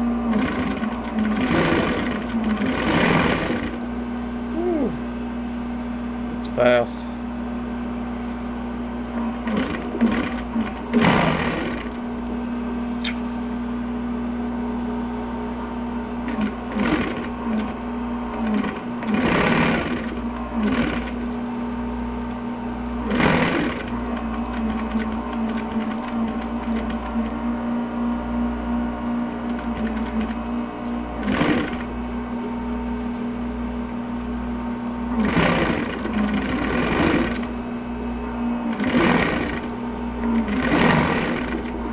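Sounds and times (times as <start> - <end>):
sewing machine stitching: 0.3 - 3.9, 9.2 - 12.1, 16.2 - 21.3, 23.0 - 27.4, 29.4 - 30.4, 31.2 - 31.9, 35.1 - 37.5, 38.6 - 41.9.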